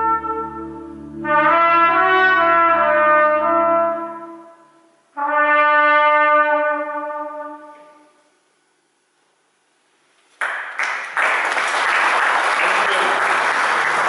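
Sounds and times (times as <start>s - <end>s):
cornet melody: 0.0s - 8.1s
low accompaniment: 0.0s - 8.1s.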